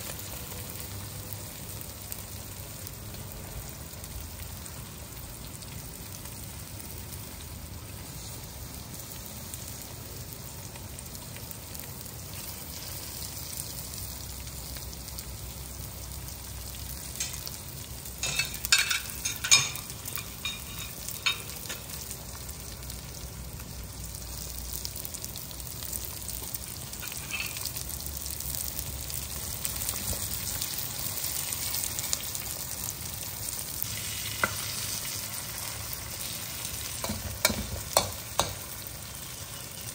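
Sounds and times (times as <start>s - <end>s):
prawns sizzling in a wok: 0.0s - 39.9s
metal spatula stirring: 18.2s - 21.8s, 27.0s - 27.7s.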